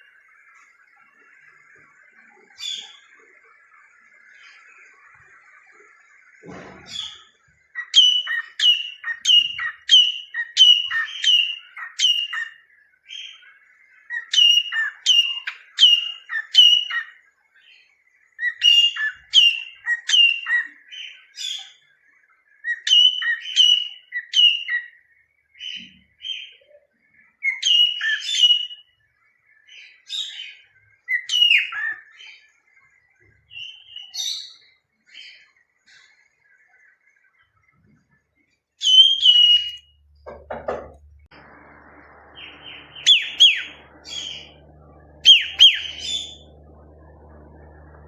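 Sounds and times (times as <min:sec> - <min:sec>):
cockatiel whistled chirps: 0:06.9 - 0:13.4, 0:14.1 - 0:17.1, 0:18.4 - 0:21.8, 0:22.6 - 0:25.0, 0:27.4 - 0:28.9, 0:30.1 - 0:32.3, 0:38.8 - 0:39.9, 0:42.4 - 0:44.6, 0:45.2 - 0:46.4.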